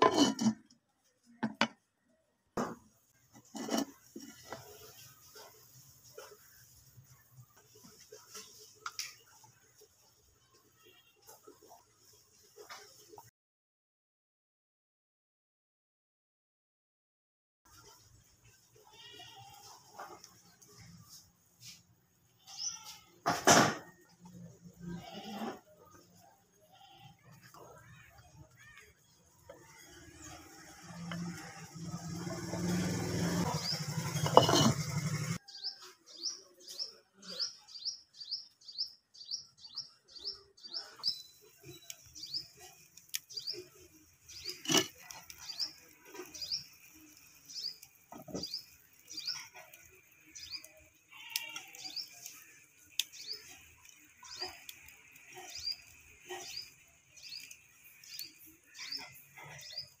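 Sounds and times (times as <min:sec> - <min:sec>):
wooden spoon stirring in a pot: 0:02.6 - 0:09.9, 0:27.2 - 0:35.4.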